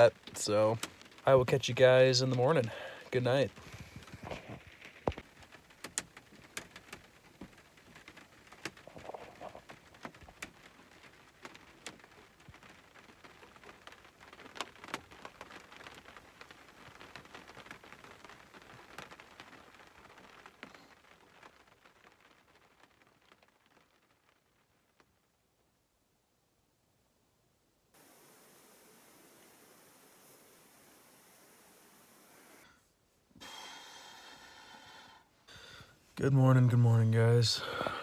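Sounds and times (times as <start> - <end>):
sharp raindrop taps: 0.0 - 25.2
heavy rain on a camper roof: 0.0 - 25.9, 27.9 - 38.0.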